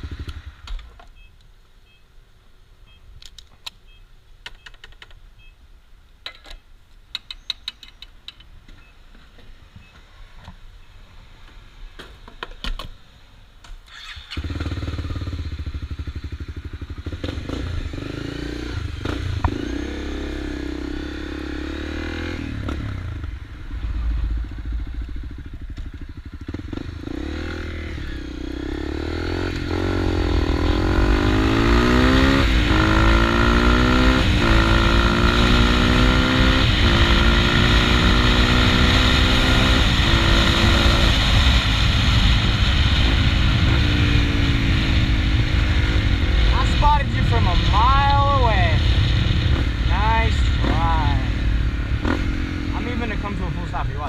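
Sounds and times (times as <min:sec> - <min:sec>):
motorcycle engine revving: 0:13.9 - 0:54.0.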